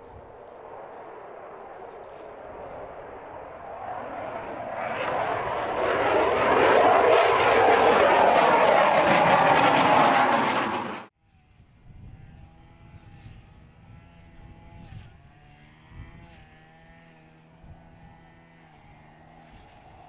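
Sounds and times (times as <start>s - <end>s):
jet engines running loud: 0.0s - 11.1s
faint engine hum: 7.9s - 20.0s.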